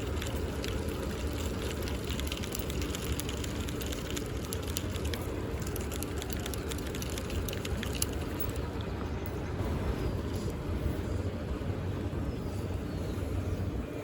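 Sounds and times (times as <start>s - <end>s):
light ticks and crackles: 0.0s - 9.4s.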